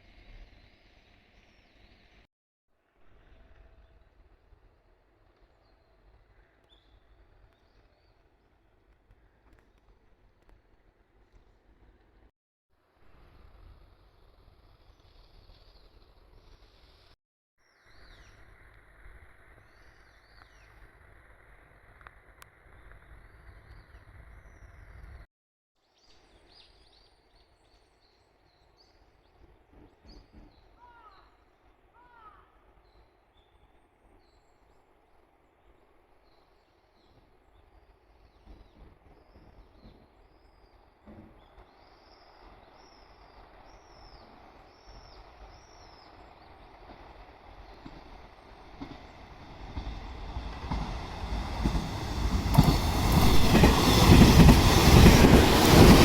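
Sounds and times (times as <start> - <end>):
train rumbling on rails: 29.3 - 31.0, 37.9 - 56.0.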